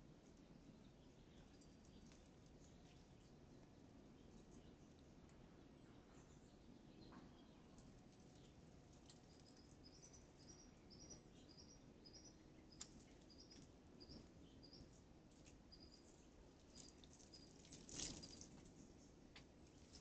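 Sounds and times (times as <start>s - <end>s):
faint high chirps: 5.9s - 19.1s.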